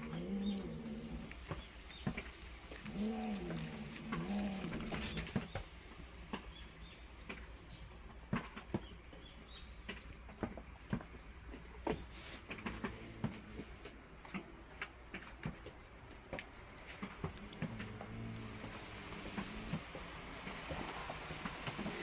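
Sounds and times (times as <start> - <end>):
pigeon cooing: 0.0 - 1.7, 2.6 - 5.4
small birds chirping: 0.0 - 8.0, 8.6 - 10.5.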